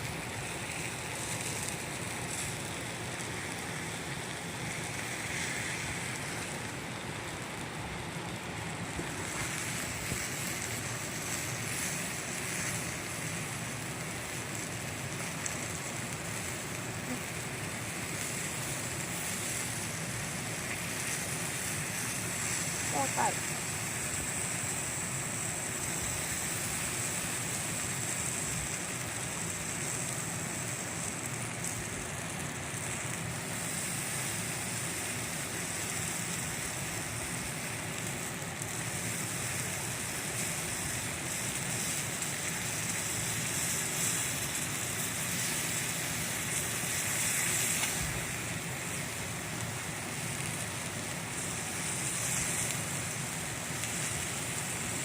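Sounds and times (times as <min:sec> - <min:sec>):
campfire burning: 0:00.0 - 0:55.0.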